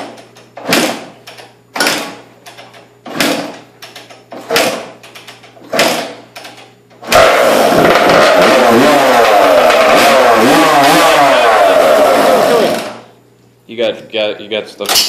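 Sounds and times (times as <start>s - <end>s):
motorcycle kick-start kicks: 0.0s - 8.7s
two-stroke engine revving: 7.0s - 13.1s.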